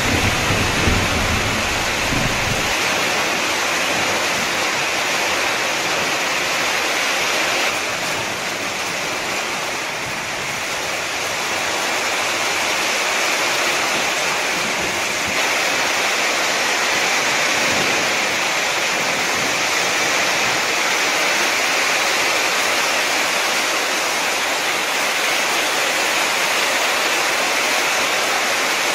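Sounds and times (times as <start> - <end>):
torrential rain pouring: 0.0 - 28.9.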